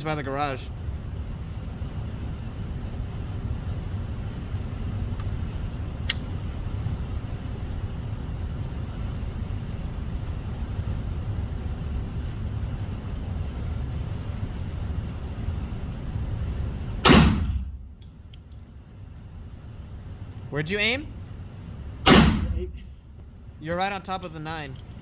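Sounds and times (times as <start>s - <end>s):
low background rumble: 0.0s - 25.0s
sharp crack: 17.0s - 17.8s, 22.1s - 22.9s.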